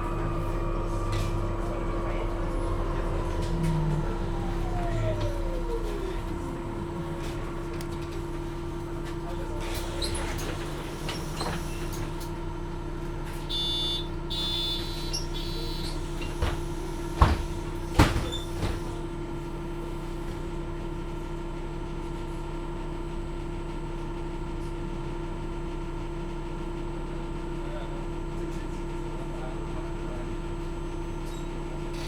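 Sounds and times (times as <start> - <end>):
bus doors knocking: 0.0 - 12.1, 15.9 - 19.0
bus electrical hum: 0.0 - 32.0.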